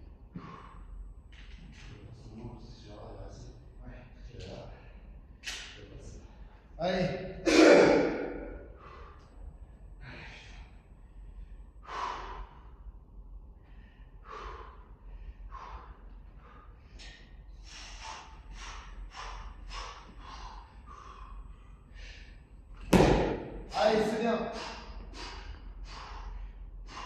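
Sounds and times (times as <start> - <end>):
person breathing hard: 0.3 - 1.2, 7.5 - 27.0.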